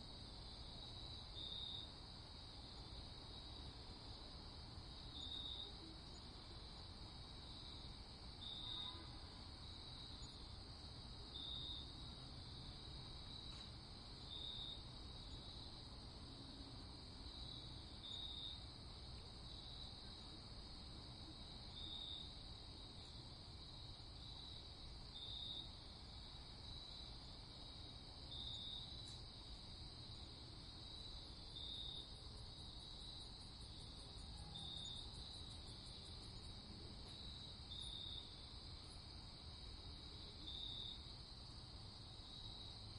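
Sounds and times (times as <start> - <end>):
crickets chirping: 0.0 - 42.9.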